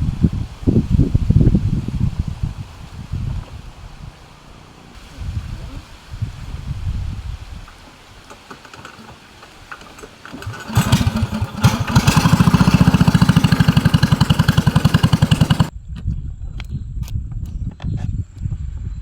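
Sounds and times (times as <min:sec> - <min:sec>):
small engine puttering: 0:07.7 - 0:15.7.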